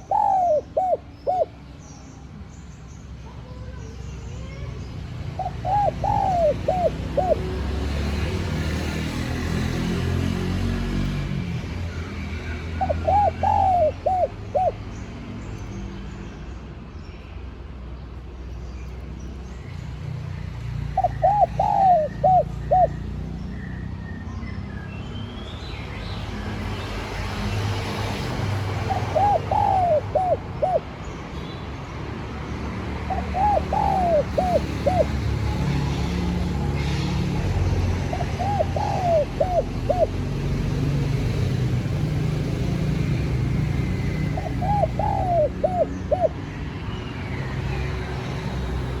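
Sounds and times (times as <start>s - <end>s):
dove cooing: 0.0s - 1.6s, 5.4s - 7.6s, 12.8s - 14.8s, 21.0s - 23.1s, 28.7s - 31.0s, 33.1s - 40.3s, 43.8s - 46.4s.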